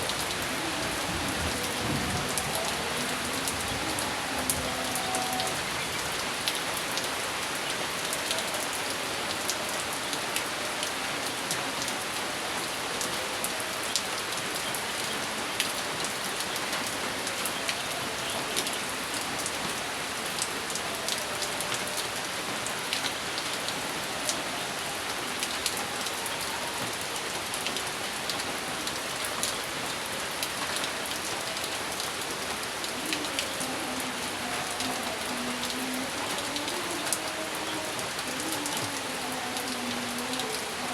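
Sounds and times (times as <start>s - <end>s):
rain on a hard surface: 0.0s - 40.9s.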